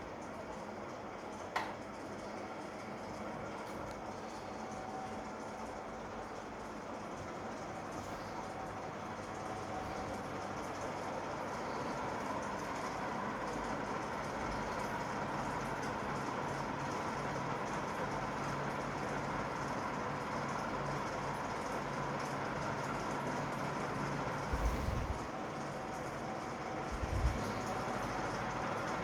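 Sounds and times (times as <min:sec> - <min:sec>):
faint motor hum: 0:00.0 - 0:29.0
ceiling fan air rushing: 0:02.0 - 0:18.2, 0:22.5 - 0:29.0.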